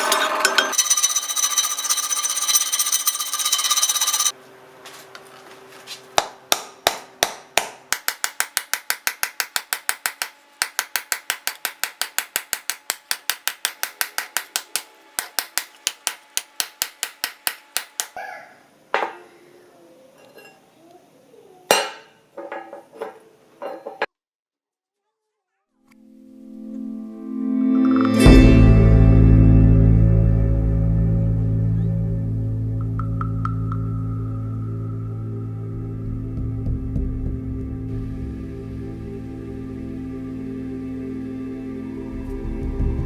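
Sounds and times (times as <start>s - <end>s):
hammer tapping on metal: 7.2s - 18.2s.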